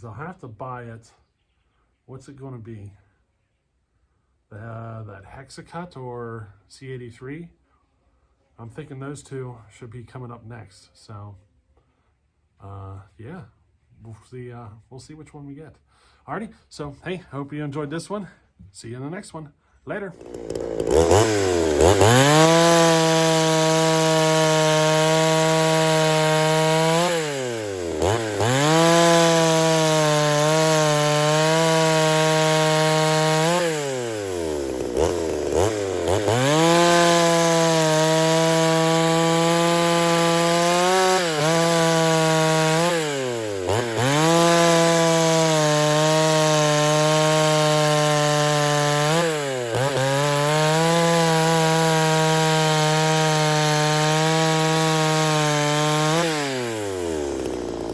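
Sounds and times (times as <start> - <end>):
chainsaw cutting wood: 20.1 - 57.9.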